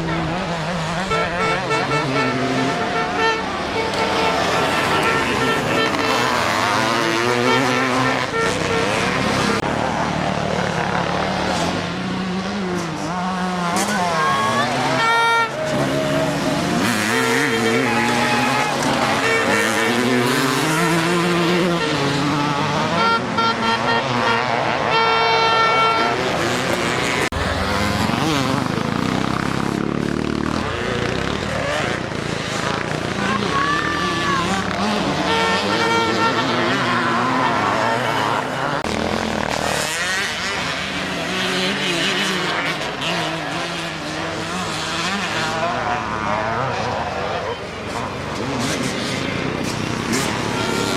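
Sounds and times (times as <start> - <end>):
horn blasts: 0.0 - 9.7, 11.6 - 29.0, 33.3 - 39.0, 49.6 - 50.9
motorcycle engines revving: 0.0 - 50.9.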